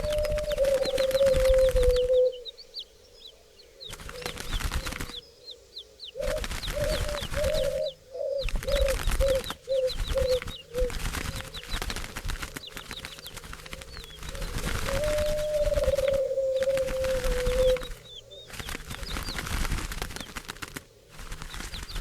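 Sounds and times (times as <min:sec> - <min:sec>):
doves flapping wings: 0:00.0 - 0:02.5, 0:03.7 - 0:05.4, 0:06.0 - 0:22.0
low dove coos: 0:00.0 - 0:02.6, 0:03.8 - 0:11.6, 0:13.3 - 0:19.1.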